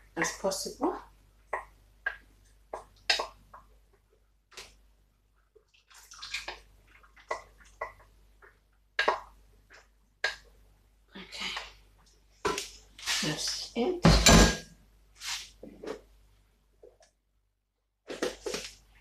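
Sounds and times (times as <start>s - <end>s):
water splashing in a bowl: 5.6s - 9.3s.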